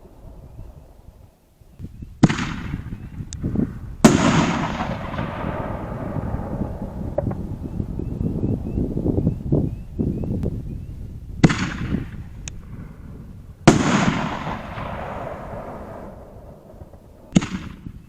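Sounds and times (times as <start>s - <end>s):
rumbling echo: 2.2s - 10.0s, 11.3s - 17.9s
firework shells banging: 4.0s - 8.0s, 13.7s - 17.9s.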